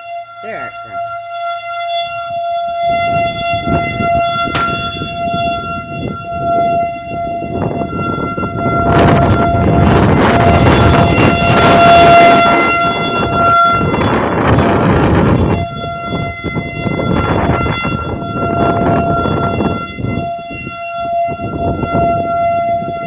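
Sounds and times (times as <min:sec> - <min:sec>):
warning siren steady tone: 0:00.0 - 0:23.0
wind noise on microphone: 0:00.0 - 0:23.0.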